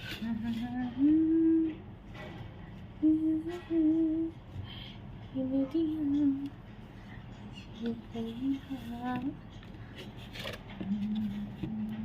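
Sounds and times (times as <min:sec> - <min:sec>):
woman humming: 0:00.0 - 0:01.9, 0:03.0 - 0:04.5, 0:05.4 - 0:06.6, 0:10.8 - 0:12.0.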